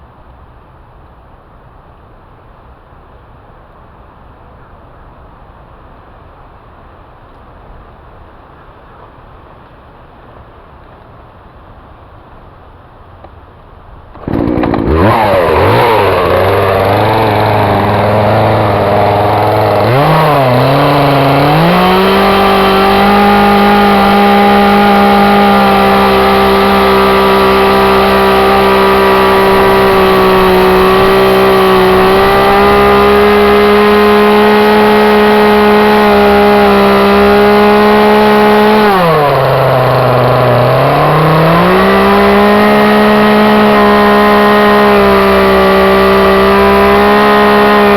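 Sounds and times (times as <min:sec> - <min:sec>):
chainsaw revving: 0:14.1 - 0:47.9.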